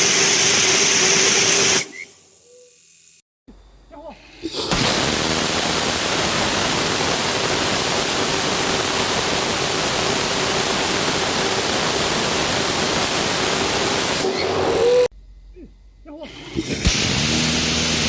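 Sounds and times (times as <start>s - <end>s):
rocket engine rushing roar: 0.0s - 2.1s, 4.5s - 15.1s.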